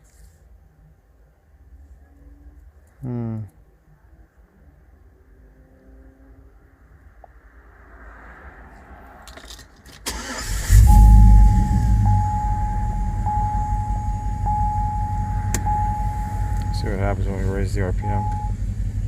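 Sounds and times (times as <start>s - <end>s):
truck engine cranking and idling: 9.3s - 19.0s
high electronic tone: 10.7s - 18.8s.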